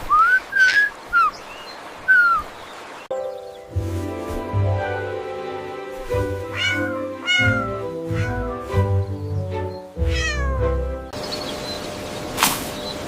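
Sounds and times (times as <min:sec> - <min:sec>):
background music: 0:03.1 - 0:11.2
cat meowing: 0:06.5 - 0:08.8, 0:10.0 - 0:10.8.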